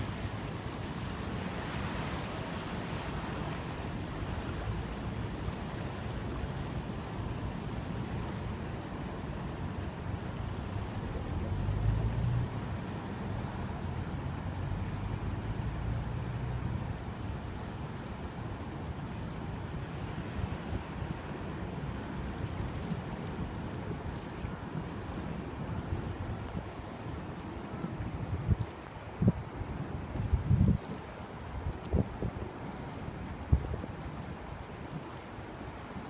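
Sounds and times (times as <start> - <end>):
surf rushing: 0.0 - 36.0
wind buffeting microphone: 22.0 - 35.9.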